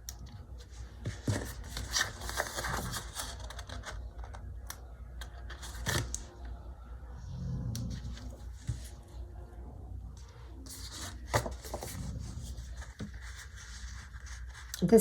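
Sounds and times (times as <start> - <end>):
paper stickers peeled and placed: 1.1 - 6.4.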